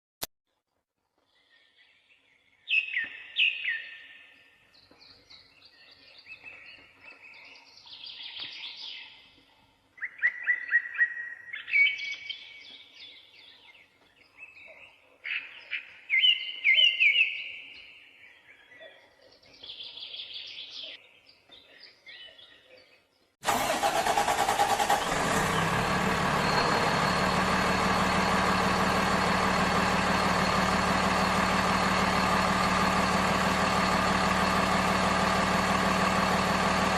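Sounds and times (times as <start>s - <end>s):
songbirds chirping and singing: 1.2s - 23.4s
engine-like drone: 23.5s - 36.9s.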